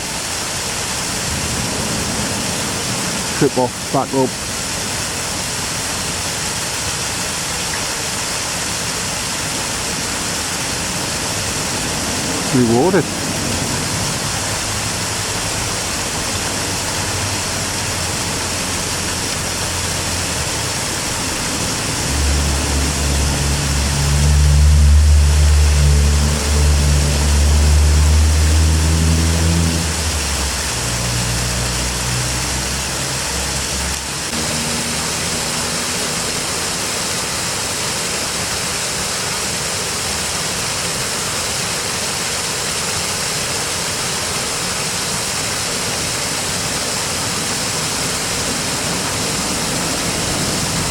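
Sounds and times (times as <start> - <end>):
river water rushing: 0.0 - 50.9
vehicle engine passing: 9.8 - 37.6.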